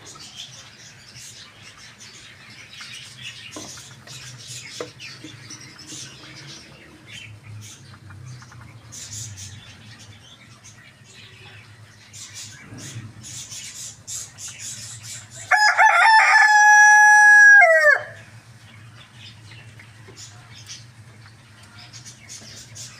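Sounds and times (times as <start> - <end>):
low steady hum: 0.0 - 22.9
rooster crowing: 15.5 - 18.3.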